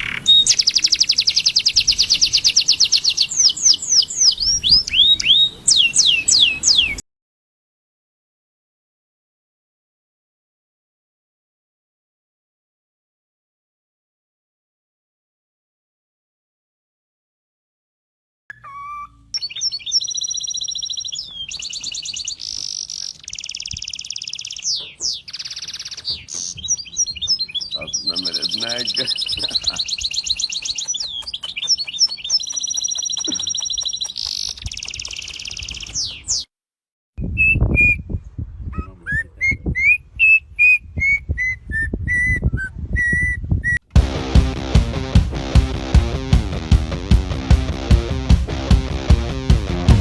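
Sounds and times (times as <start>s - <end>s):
bird singing trills and whistles: 0.0s - 7.0s, 18.5s - 36.5s, 37.2s - 43.8s.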